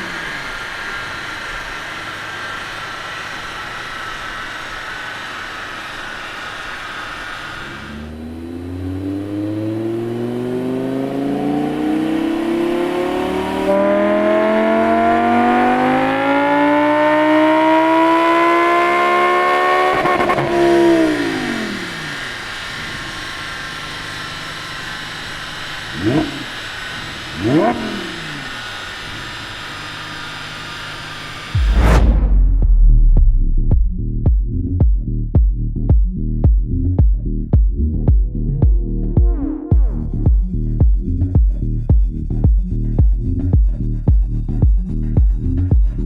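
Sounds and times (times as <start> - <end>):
sports car engine revving: 6.5 - 31.9.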